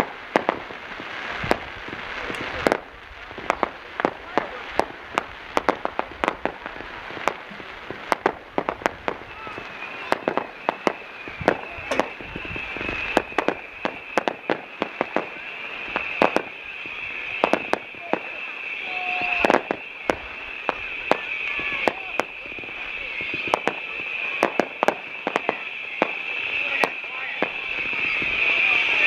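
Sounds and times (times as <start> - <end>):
fireworks bangs and pops: 0.0 - 29.0
high whistling tone: 8.4 - 29.0.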